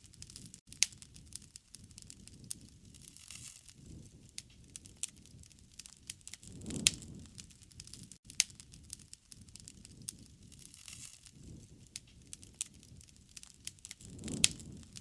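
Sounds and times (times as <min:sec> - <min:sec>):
wood fire crackling: 0:00.0 - 0:15.0
low rush of flame: 0:00.1 - 0:15.0.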